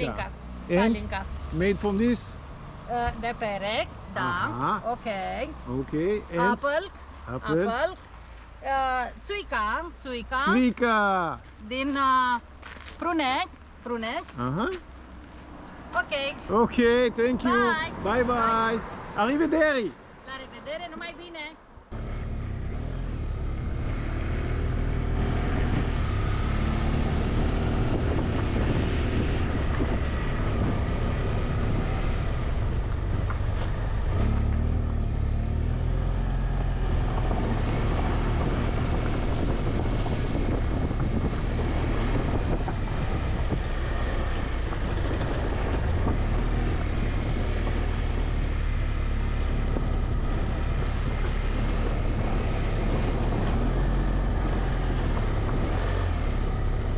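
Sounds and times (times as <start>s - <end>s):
wind rushing over microphone: 22.1s - 56.9s.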